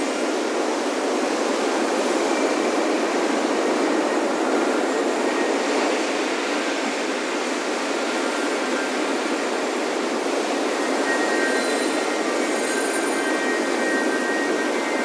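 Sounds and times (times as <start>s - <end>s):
wind chime tones: 10.7s - 15.0s.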